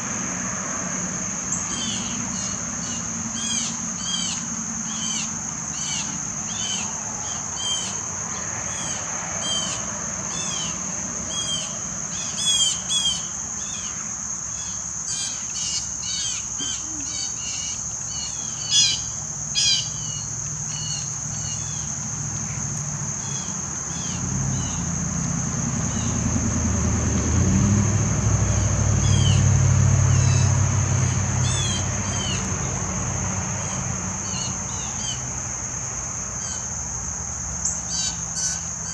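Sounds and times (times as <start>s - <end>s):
vehicle engine rumble: 0.0s - 38.9s
high-pitched insect drone: 0.3s - 38.9s
harsh bird calls: 14.6s - 21.9s.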